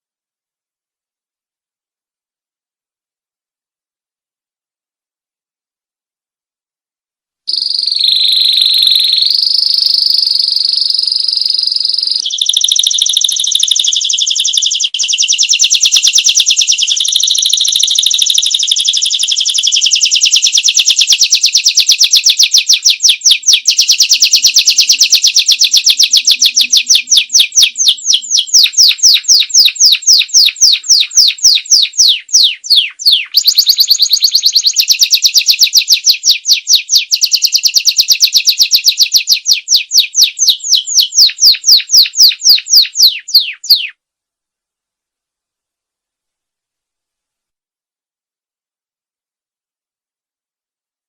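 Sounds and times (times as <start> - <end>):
canary singing: 7.5 - 44.0.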